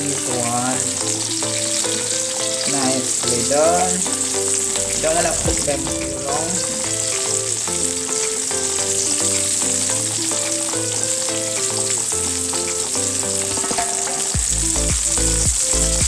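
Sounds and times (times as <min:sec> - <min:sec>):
food sizzling in a frying pan: 0:00.0 - 0:16.0
background music with bass beat: 0:03.8 - 0:16.0.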